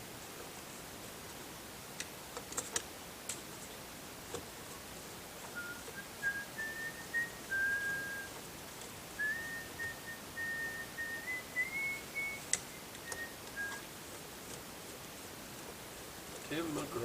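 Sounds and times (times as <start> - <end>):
person whistling a tune: 5.6 - 8.3, 9.2 - 13.8.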